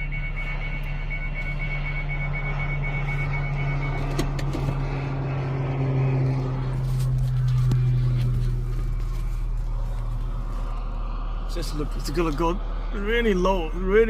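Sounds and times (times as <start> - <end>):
rapid high-pitched beeping: 0.0 - 4.1
low engine drone: 0.0 - 14.0.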